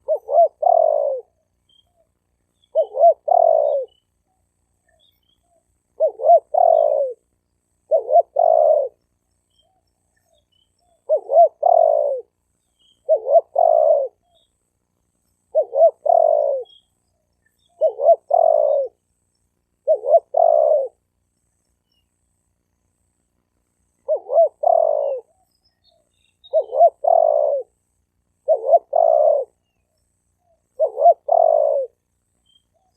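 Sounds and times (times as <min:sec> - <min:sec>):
dove cooing: 0:00.0 - 0:09.0, 0:09.6 - 0:14.5, 0:15.4 - 0:16.8, 0:17.6 - 0:19.0, 0:19.8 - 0:21.0, 0:24.0 - 0:27.8, 0:28.4 - 0:29.7, 0:30.6 - 0:32.0.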